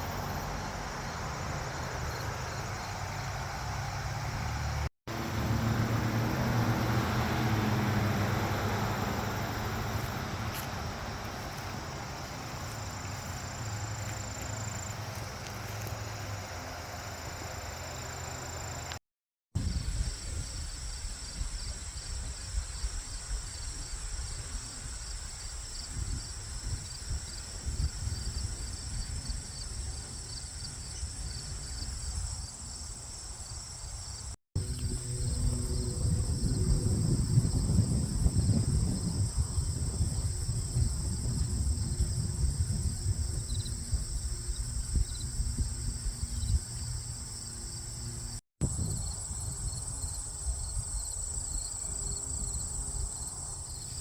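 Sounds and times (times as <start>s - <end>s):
crickets chirping: 0.0s - 19.0s, 19.6s - 54.0s
low rumble: 34.6s - 46.2s.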